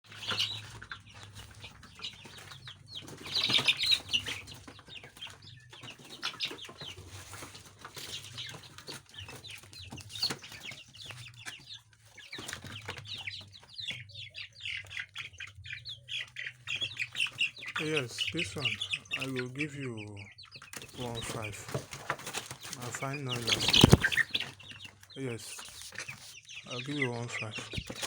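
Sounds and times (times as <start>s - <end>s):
chickens clucking and chirping: 0.0s - 28.0s
wings flapping: 0.1s - 11.6s, 20.6s - 25.0s.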